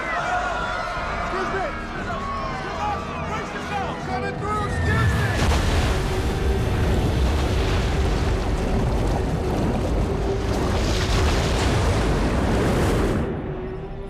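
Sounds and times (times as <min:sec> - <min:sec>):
rushing water roar: 0:04.8 - 0:14.0
deep rumble: 0:05.0 - 0:14.0.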